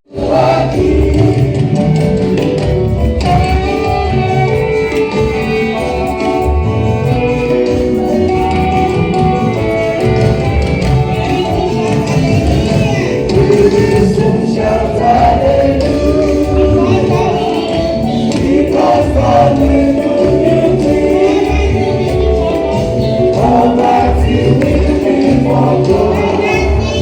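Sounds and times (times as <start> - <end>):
choir singing gospel: 0.1 - 27.0
steady bass beat: 5.8 - 27.0.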